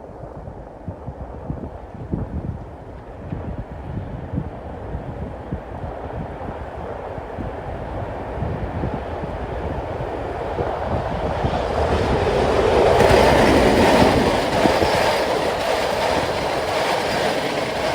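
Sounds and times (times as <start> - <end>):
diesel locomotive engine: 5.1 - 17.9
train wheels clattering over rails: 10.5 - 17.9.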